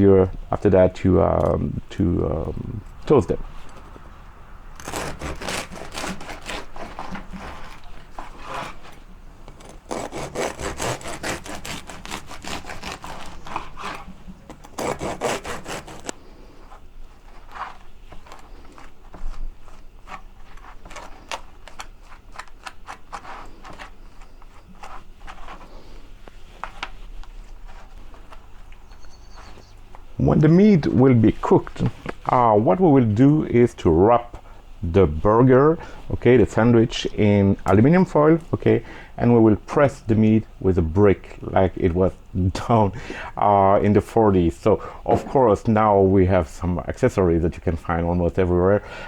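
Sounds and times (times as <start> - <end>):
knife spreading butter: 4.8 - 8.9, 9.5 - 16.2
knife sawing through bread: 4.8 - 9.0, 9.6 - 16.5.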